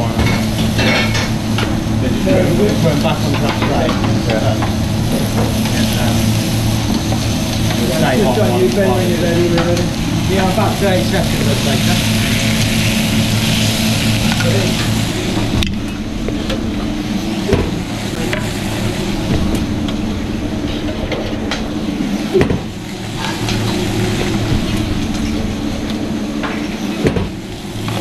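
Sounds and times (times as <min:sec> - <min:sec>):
meat sizzling on a griddle: 0:00.0 - 0:15.6
steady low hum: 0:00.0 - 0:28.0.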